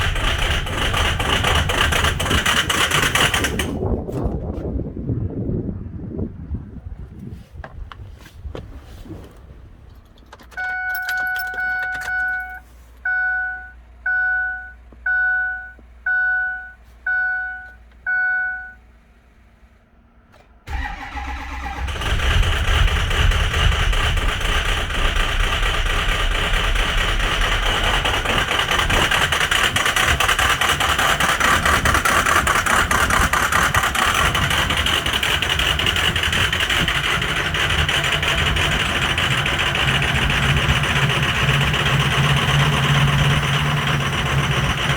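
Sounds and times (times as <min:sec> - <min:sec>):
starter cranking: 0:00.0 - 0:03.9, 0:20.7 - 0:44.9
diesel engine clattery idle: 0:00.0 - 0:04.0, 0:09.9 - 0:44.9
dashboard warning chime: 0:10.5 - 0:18.9.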